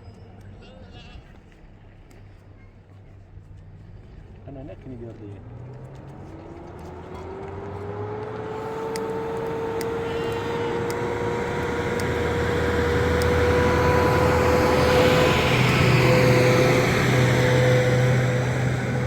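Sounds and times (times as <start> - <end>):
machine humming: 8.0 - 19.0.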